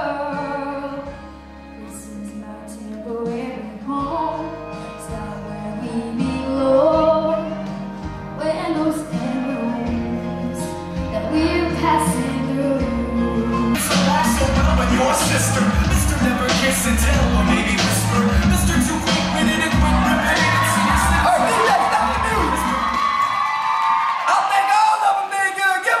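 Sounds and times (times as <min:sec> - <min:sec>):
woman singing: 0:00.0 - 0:01.2, 0:01.8 - 0:16.4
instrumental backing with bass: 0:00.0 - 0:23.4.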